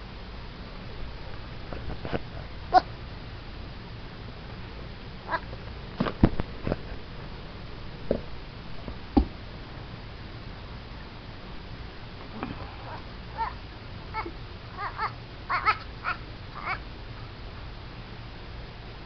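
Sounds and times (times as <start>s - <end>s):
baby goat calling: 12.9s - 16.8s.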